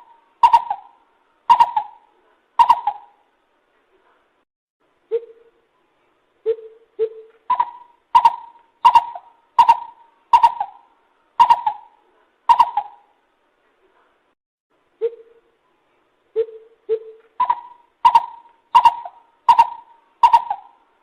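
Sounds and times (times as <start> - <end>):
lesser coucal calling: 0.0 - 3.2, 6.4 - 13.2, 16.4 - 20.9.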